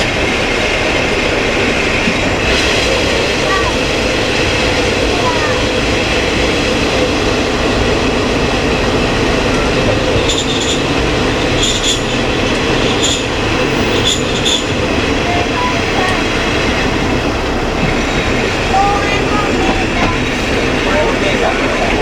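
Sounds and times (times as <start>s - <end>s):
diesel railcar running: 0.0s - 22.0s
high-pitched squeals: 10.2s - 22.0s.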